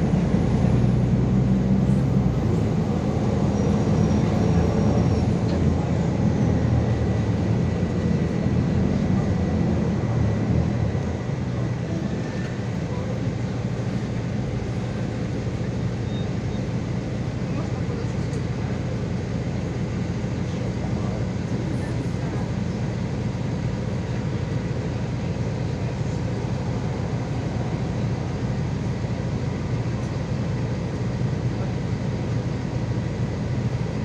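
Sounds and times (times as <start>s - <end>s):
bus engine rumble: 0.0s - 34.0s
road noise: 0.0s - 34.0s.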